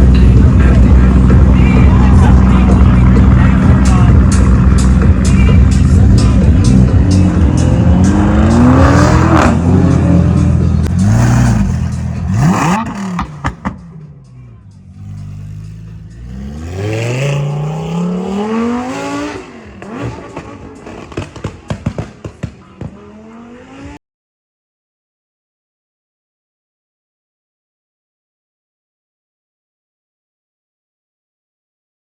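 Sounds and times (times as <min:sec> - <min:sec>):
car engine revving: 0:00.0 - 0:24.0
exhaust pops and crackles: 0:19.8 - 0:23.0.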